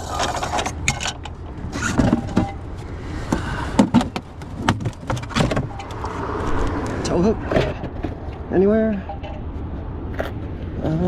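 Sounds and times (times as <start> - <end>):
things rummaged in car trunk: 0.0 - 6.2.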